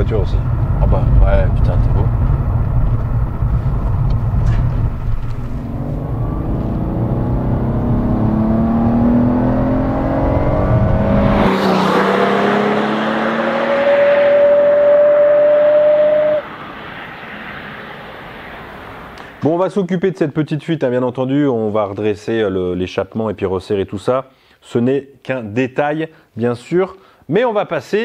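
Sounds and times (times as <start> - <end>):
car engine accelerating: 0.0 - 19.3
car passing by: 0.2 - 19.5.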